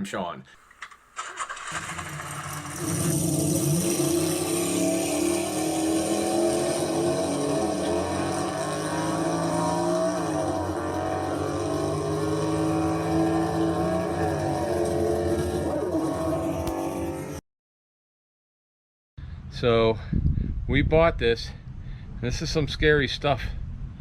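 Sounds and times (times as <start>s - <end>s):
car engine at high revs: 1.2s - 17.4s.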